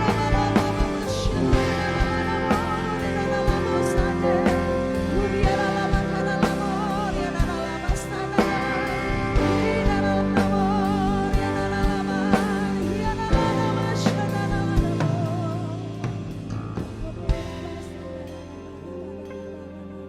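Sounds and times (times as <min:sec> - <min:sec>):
steady drum beat: 0:00.0 - 0:18.5
live band playing slow song: 0:00.0 - 0:20.0
person singing: 0:00.0 - 0:20.0.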